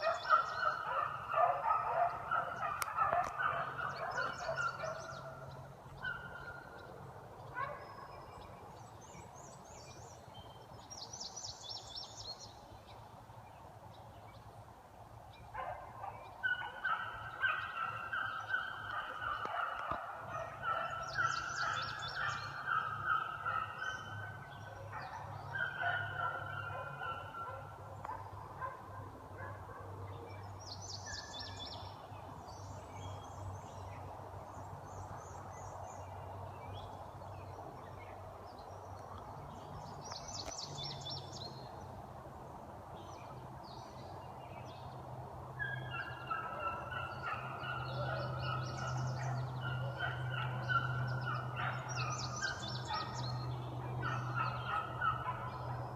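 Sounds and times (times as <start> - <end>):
hounds baying: 0.0 - 5.4, 15.6 - 30.0, 45.6 - 55.9.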